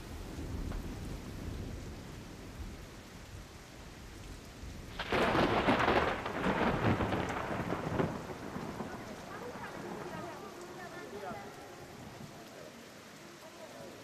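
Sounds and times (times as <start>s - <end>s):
thunder clap rolling: 4.8s - 12.4s.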